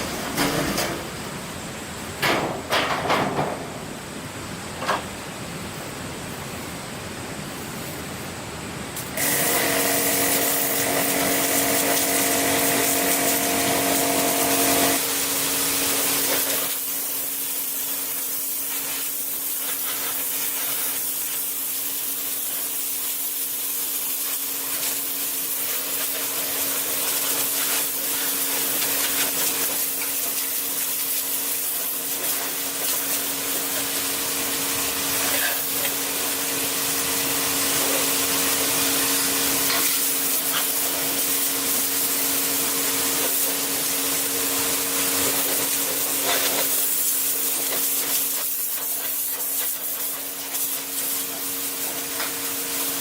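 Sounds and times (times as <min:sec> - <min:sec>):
machine motor hissing and humming: 0:09.0 - 0:19.4.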